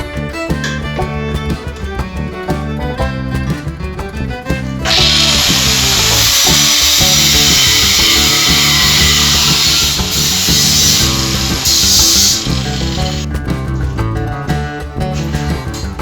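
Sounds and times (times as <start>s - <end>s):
background music: 0.0s - 16.0s
power tool grinding hiss: 4.9s - 13.3s.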